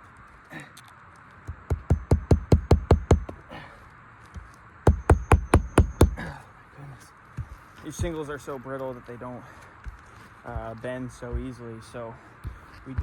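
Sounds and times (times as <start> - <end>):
hammer driving nails into shingles: 1.5 - 3.5, 4.4 - 6.3.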